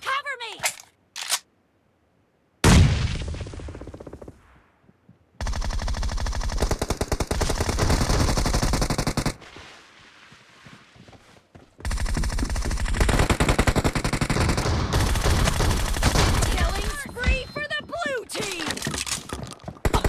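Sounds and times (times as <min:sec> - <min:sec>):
video game automatic gunfire: 0:05.4 - 0:09.4, 0:11.9 - 0:17.0.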